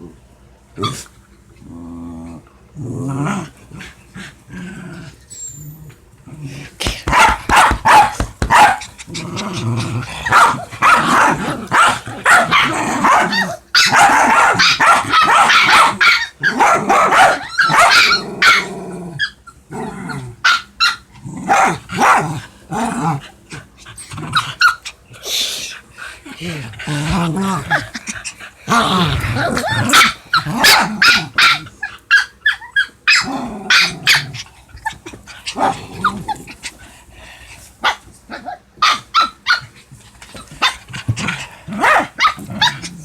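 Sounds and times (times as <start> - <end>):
dogs growling and snarling: 0.8 - 20.5, 21.1 - 25.2, 26.0 - 38.7, 39.8 - 43.0
dogs barking: 7.0 - 9.0, 10.2 - 18.7, 20.4 - 22.4, 29.7 - 34.3, 38.8 - 39.7, 41.8 - 42.9.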